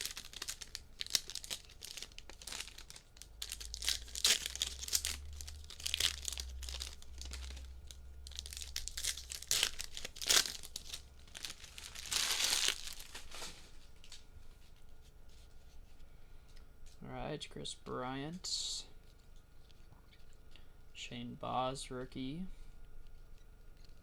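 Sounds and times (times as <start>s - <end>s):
foil wrappers tearing and crinkling: 0.0s - 14.2s.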